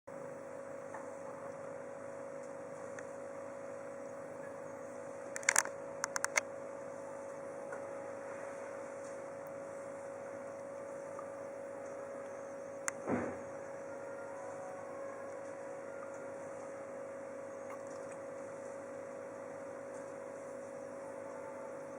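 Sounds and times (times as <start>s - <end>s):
steady electrical hum: 0.1s - 21.9s
sharp clicks: 5.3s - 6.5s.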